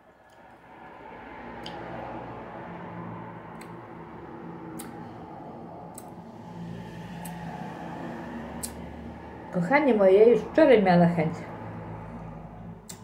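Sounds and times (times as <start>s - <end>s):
steady low hum: 0.0s - 13.0s
sharp mouth clicks: 4.7s - 5.0s, 5.9s - 6.2s, 8.6s - 8.8s.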